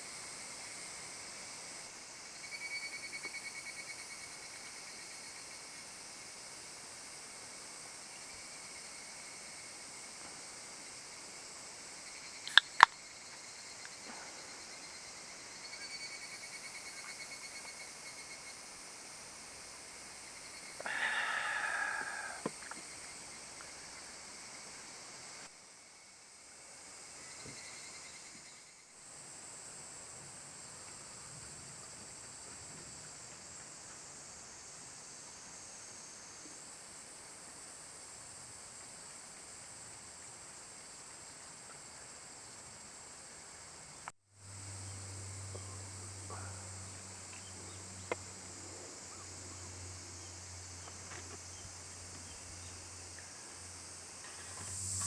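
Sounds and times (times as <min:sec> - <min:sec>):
high insect-like hiss: 0:00.0 - 0:55.0
sharp clicks: 0:12.5 - 0:13.0.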